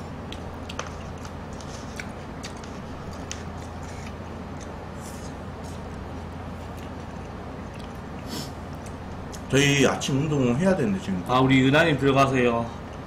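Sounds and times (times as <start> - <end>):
people chewing: 0.0 - 9.5
low room hum: 0.0 - 13.0.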